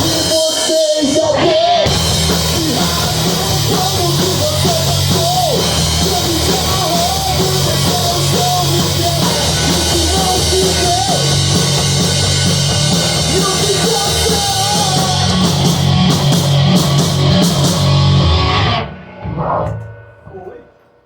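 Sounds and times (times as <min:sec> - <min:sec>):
heavy rock band playing: 0:00.0 - 0:20.4
wavering vocal or lead line: 0:00.0 - 0:20.6.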